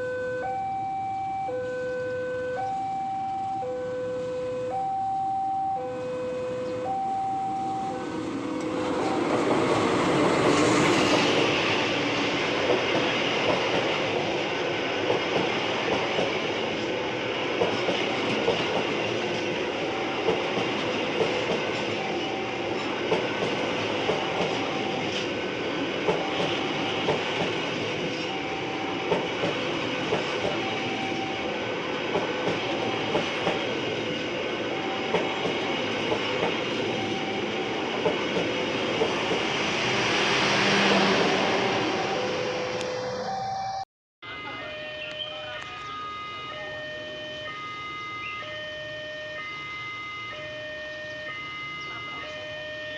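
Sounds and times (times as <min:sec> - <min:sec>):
level crossing warning alarm: 0:00.0 - 0:15.2, 0:17.1 - 0:52.9
train wheels clacking over rails: 0:08.0 - 0:42.3.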